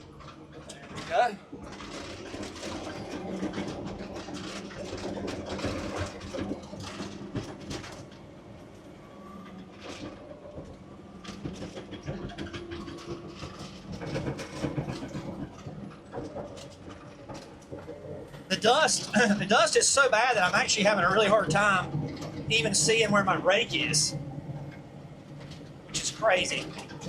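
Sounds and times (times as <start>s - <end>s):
clanking and cracking knocks: 0.2s - 8.2s, 9.8s - 18.5s, 21.8s - 22.5s
bulldozer diesel engine running: 18.3s - 27.0s.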